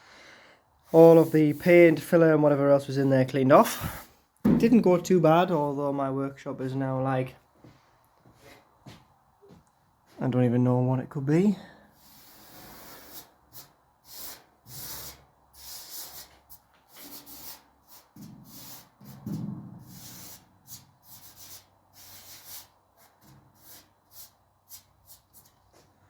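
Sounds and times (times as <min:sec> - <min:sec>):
rubbing or brushing strokes: 0:00.9 - 0:02.2, 0:12.4 - 0:25.9.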